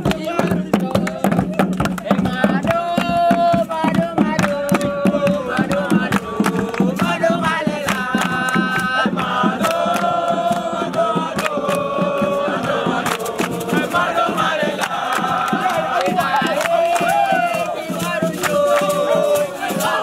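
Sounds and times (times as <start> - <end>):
group chanting and singing: 0.0 - 20.0
percussive claps or drum beats: 0.0 - 20.0.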